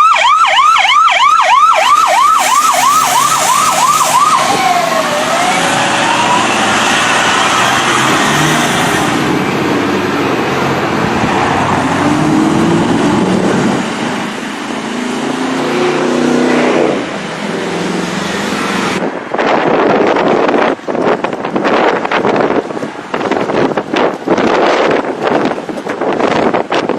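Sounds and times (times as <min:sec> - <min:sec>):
road and wind noise: 0:00.0 - 0:26.9
car engine revving hard: 0:02.4 - 0:19.1.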